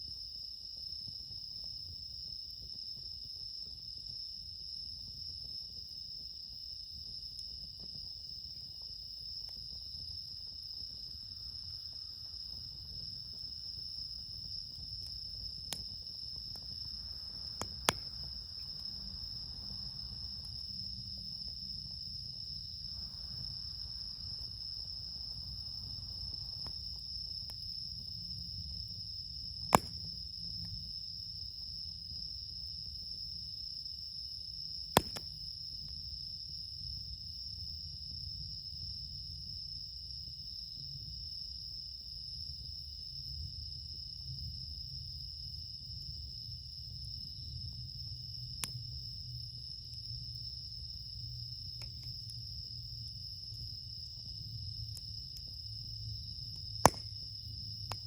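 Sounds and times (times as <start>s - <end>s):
crickets chirping: 0.0s - 58.0s
campfire pops: 6.5s - 28.1s, 29.6s - 30.8s, 34.9s - 35.5s, 48.6s - 48.9s, 56.4s - 58.0s.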